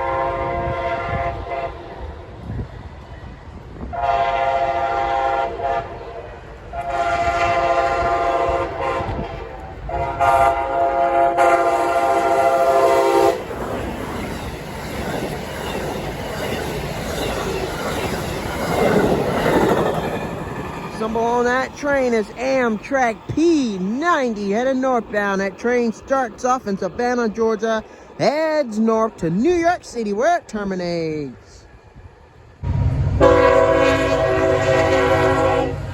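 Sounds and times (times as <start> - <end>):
train horn blasts: 0.0 - 2.0, 3.9 - 13.5, 32.6 - 35.9
train wheels clacking on rails: 11.5 - 28.5.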